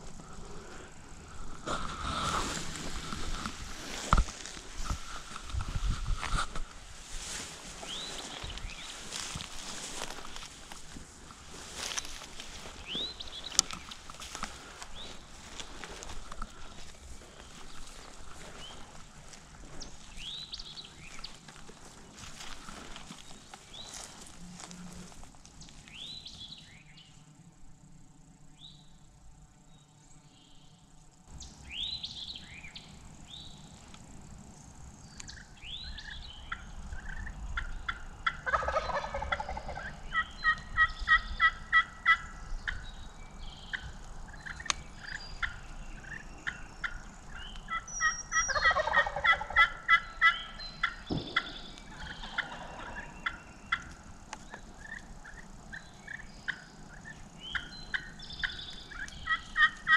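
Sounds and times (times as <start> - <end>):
wild turkey gobbling: 35.3 - 42.8, 43.7 - 59.9.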